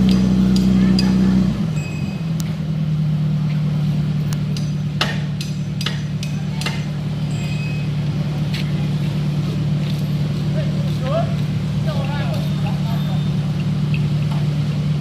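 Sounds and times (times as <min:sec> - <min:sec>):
heavy diesel engine running: 0:00.0 - 0:15.0
sharp clicks and knocks: 0:04.3 - 0:07.0.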